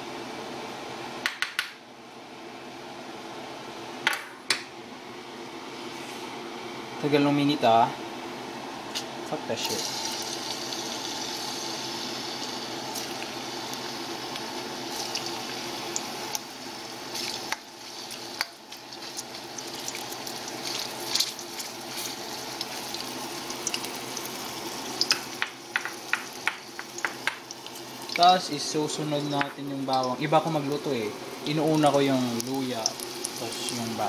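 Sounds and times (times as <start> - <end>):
air conditioner hum: 0.0 - 34.0
crackles of frying: 8.8 - 34.0
ginger frying in butter: 9.0 - 34.0
spoon tapping a pot: 25.1 - 27.4.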